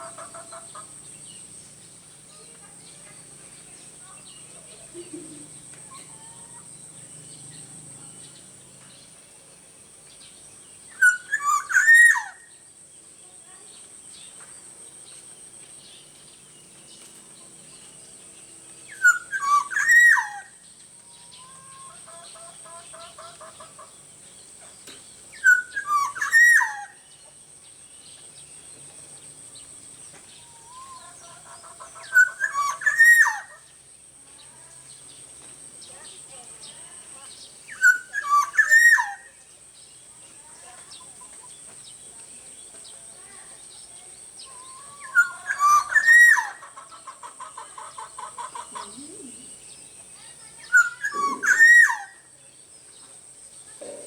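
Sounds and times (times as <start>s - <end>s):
faint chirps: 0.0s - 54.0s
bird fluty whistled phrases: 10.9s - 12.4s, 18.9s - 20.5s, 25.4s - 27.0s, 32.1s - 33.5s, 37.7s - 39.3s, 44.4s - 46.6s, 48.8s - 52.3s.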